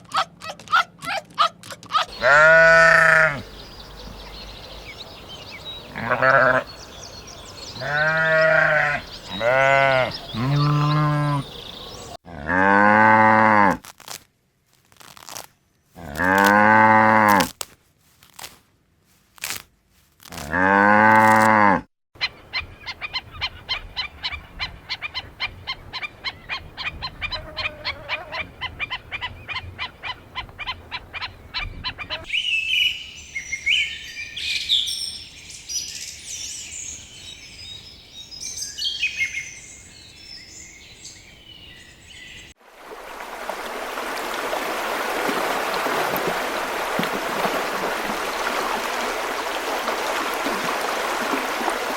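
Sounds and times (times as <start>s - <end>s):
small birds chirping: 1.9s - 12.2s, 28.6s - 42.6s
goat bleating: 2.0s - 3.4s, 6.0s - 6.6s, 7.8s - 11.4s
cow mooing: 2.1s - 3.4s, 7.8s - 11.5s, 12.3s - 13.8s, 16.0s - 17.5s, 20.4s - 21.8s.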